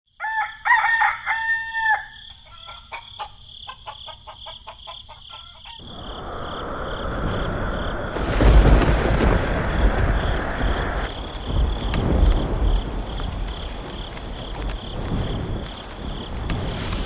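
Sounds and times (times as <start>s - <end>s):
rooster crowing: 0.1s - 6.2s
chicken clucking: 2.3s - 5.9s
steady hiss: 5.8s - 17.0s.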